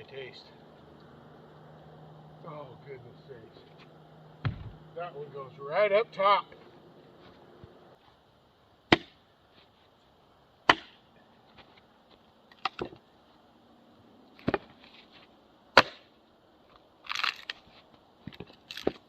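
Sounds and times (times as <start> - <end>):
wooden knocks of firewood: 4.4 - 4.8, 10.7 - 11.0, 12.6 - 13.0, 14.4 - 14.8, 15.8 - 16.1.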